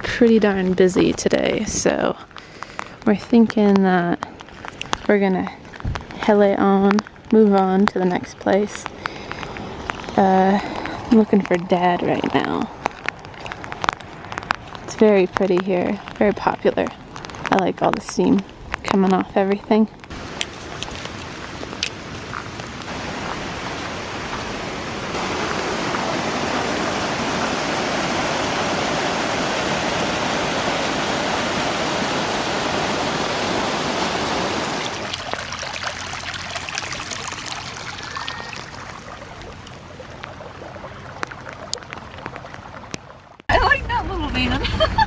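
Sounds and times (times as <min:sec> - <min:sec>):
water flowing: 0:20.0 - 0:43.8.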